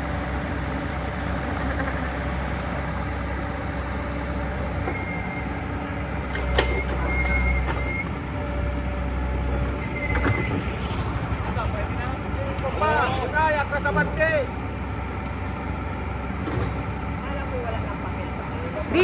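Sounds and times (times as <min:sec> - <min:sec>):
diesel engine running: 0:00.0 - 0:19.0
short high squeaks: 0:04.8 - 0:05.7, 0:06.4 - 0:13.5.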